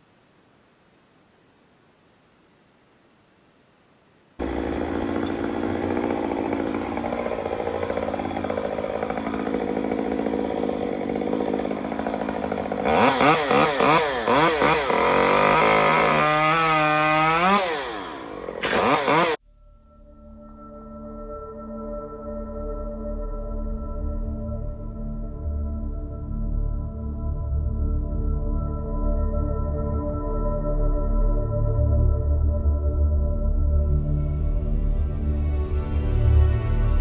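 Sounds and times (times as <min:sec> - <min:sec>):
chainsaw engine revving: 0:04.4 - 0:19.4.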